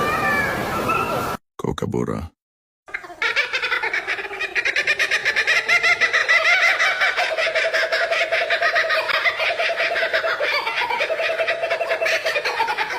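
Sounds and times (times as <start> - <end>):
kookaburra cackling: 2.9 - 12.9.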